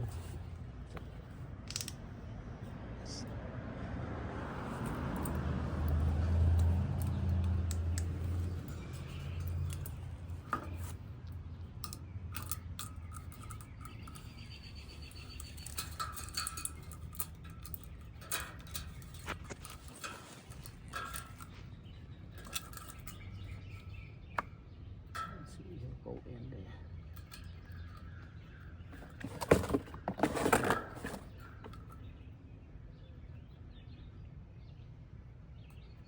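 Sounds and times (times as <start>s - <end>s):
metallic clicks and taps: 0.9s - 2.0s, 4.8s - 14.3s.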